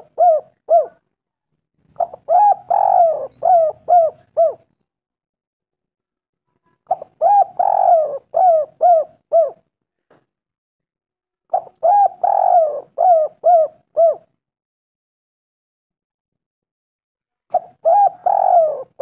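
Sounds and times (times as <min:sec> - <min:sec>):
dove cooing: 0:00.0 - 0:01.0, 0:02.0 - 0:04.8, 0:06.9 - 0:09.7, 0:11.5 - 0:14.3, 0:17.5 - 0:19.0.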